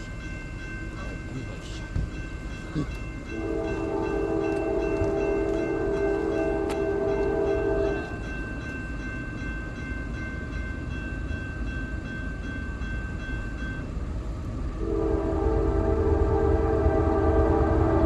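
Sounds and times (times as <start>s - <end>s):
diesel train rumbling: 0.0s - 18.0s
locomotive horn chord: 3.3s - 8.2s, 14.8s - 18.0s.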